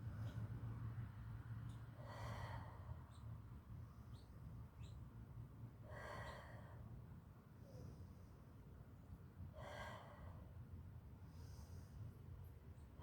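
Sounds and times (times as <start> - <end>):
woman breathing slowly: 1.9 - 3.3, 5.8 - 8.6, 9.4 - 12.4.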